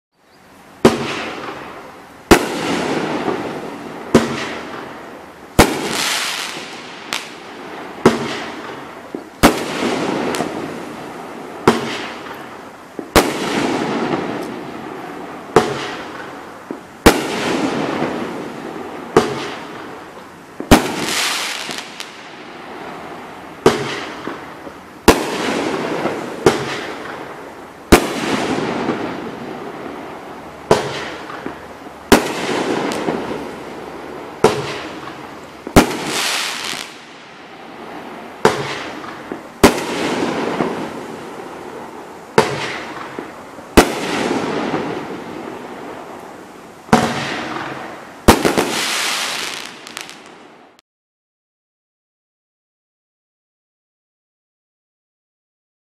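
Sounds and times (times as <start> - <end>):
firework bangs: 0.8 - 50.8
crackle of bursting stars: 47.2 - 50.8.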